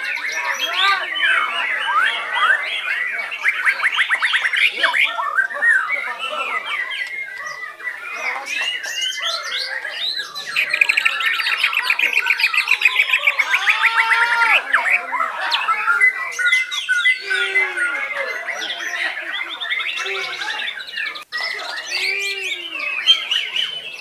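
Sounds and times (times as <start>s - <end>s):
songbirds singing: 0.0s - 24.0s.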